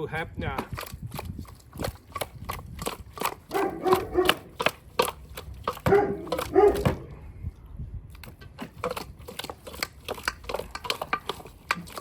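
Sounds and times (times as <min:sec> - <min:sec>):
hands clicking and rustling: 0:00.7 - 0:06.8, 0:08.2 - 0:12.0.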